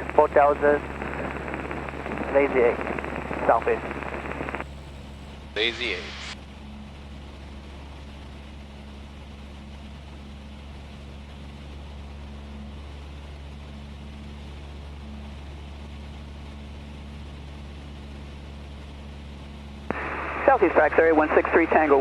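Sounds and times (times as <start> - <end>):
cabin air noise: 0.0 - 6.4, 19.9 - 22.0
airplane engine and propeller droning: 0.0 - 22.0.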